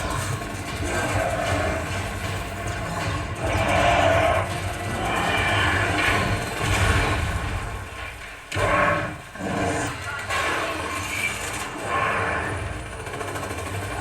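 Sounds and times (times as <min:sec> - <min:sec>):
loud booms: 0:00.0 - 0:09.3.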